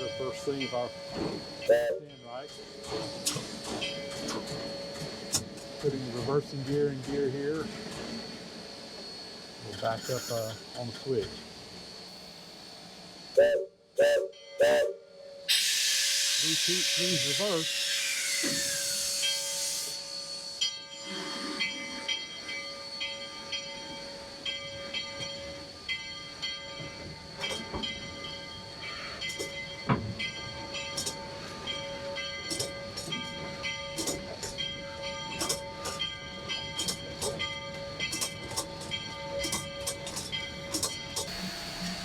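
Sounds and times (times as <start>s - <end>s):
steam locomotive running: 0.0s - 42.0s
steam hissing: 8.0s - 11.1s, 15.5s - 22.0s, 41.3s - 42.0s
metal clanks and clicks: 32.5s - 33.3s, 33.9s - 34.6s, 35.3s - 36.0s.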